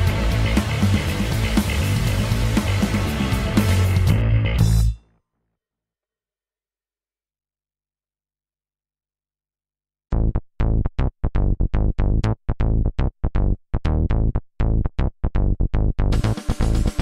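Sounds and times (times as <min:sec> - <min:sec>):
electronic synthesizer music: 0:00.0 - 0:05.1, 0:16.1 - 0:17.0.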